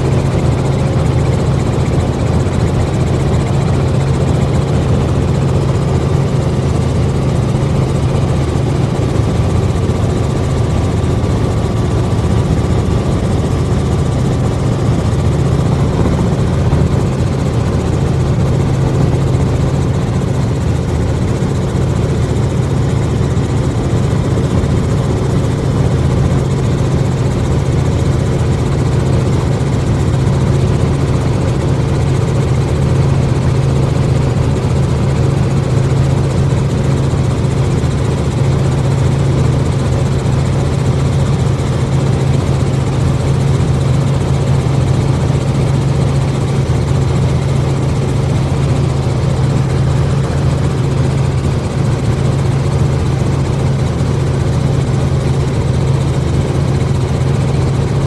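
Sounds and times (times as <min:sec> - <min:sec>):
helicopter engine and rotor hum: 0:00.0 - 0:58.0.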